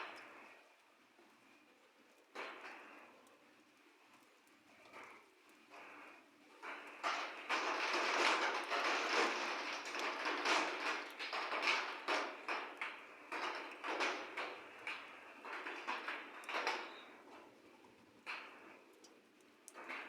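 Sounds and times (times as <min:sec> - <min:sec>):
thunder rolling with crackles: 0:04.9 - 0:20.0.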